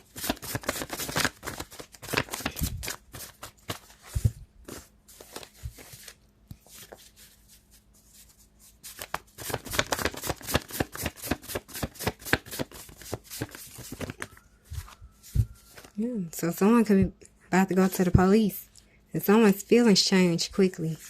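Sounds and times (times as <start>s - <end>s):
cards shuffling: 0.0s - 15.9s.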